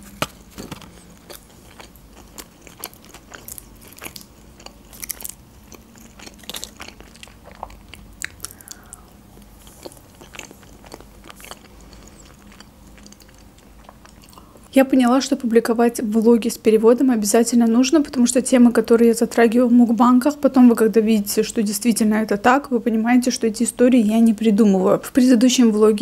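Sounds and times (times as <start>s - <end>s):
person chewing food: 0.0s - 14.6s.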